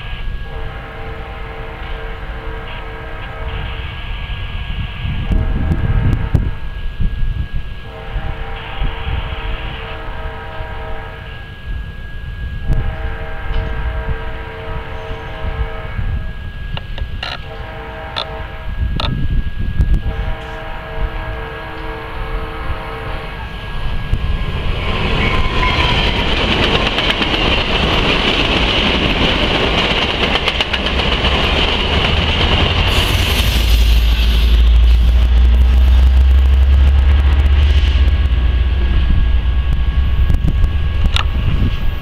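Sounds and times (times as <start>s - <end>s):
train horn: 0.0s - 6.9s, 7.7s - 24.1s, 25.0s - 27.3s, 32.8s - 42.0s
train passing at speed: 0.0s - 42.0s
deep rumble: 29.7s - 42.0s.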